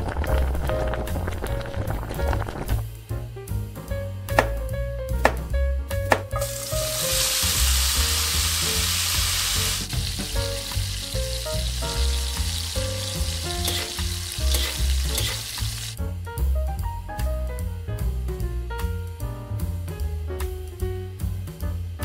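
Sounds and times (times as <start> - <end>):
meat sizzling in a wok: 0.0 - 3.6, 6.3 - 16.0
background music: 0.0 - 22.0
cleaver chopping on wooden board: 4.3 - 4.6, 5.2 - 6.4
metal spatula scraping: 13.6 - 15.6.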